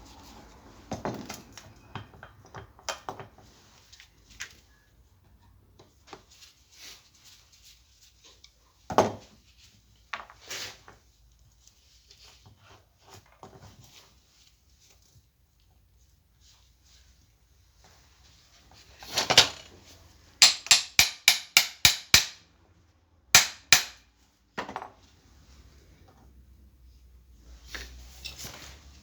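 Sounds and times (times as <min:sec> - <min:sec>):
tools and parts knocking and clinking: 0:19.0 - 0:19.7, 0:20.4 - 0:22.4, 0:23.4 - 0:24.0.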